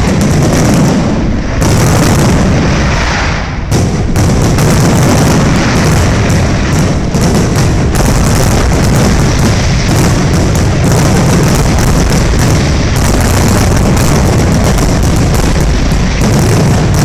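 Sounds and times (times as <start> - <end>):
fireworks booming and crackling: 0.0 - 17.0.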